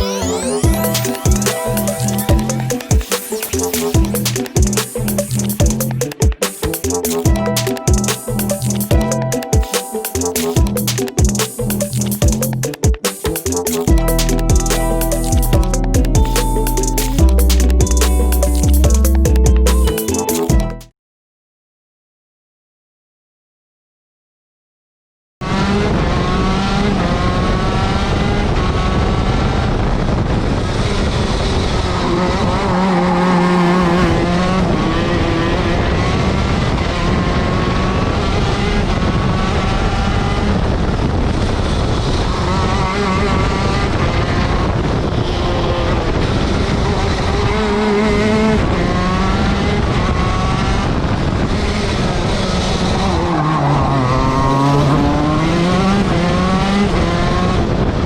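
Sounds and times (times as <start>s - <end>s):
kart engine revving: 25.4s - 58.0s.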